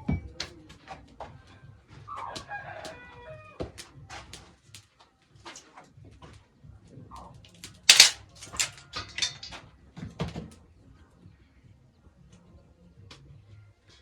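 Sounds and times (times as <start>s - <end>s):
sharp knocks and clatters: 7.9s - 9.6s.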